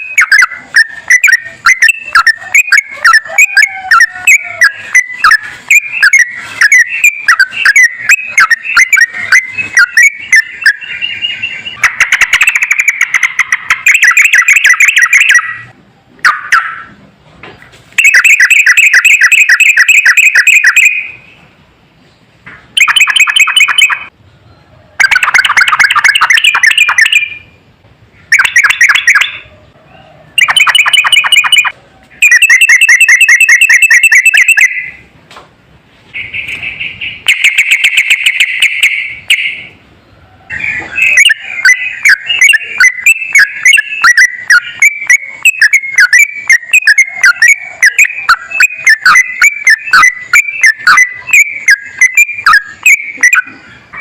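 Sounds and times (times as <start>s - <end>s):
bird trilling: 0.0s - 15.7s, 18.0s - 21.4s, 22.7s - 24.1s, 25.0s - 27.6s, 28.2s - 29.5s, 30.3s - 35.1s, 36.1s - 39.8s, 40.5s - 54.0s
bird chattering: 0.0s - 17.0s, 18.0s - 21.3s, 22.7s - 24.1s, 25.0s - 27.6s, 28.2s - 29.5s, 30.4s - 35.1s, 36.1s - 39.8s, 40.5s - 54.0s.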